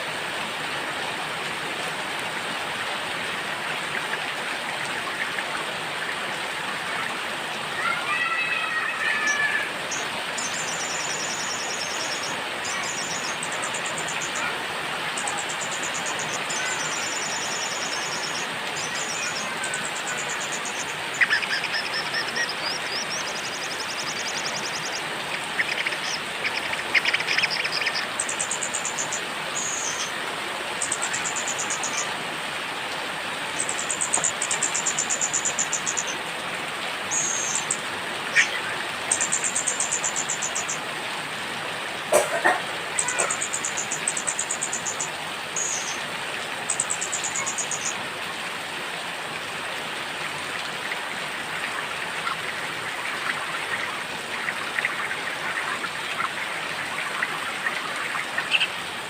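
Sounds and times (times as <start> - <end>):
steady rain: 0.0 - 59.0
songbirds chirping and trilling: 9.2 - 32.2.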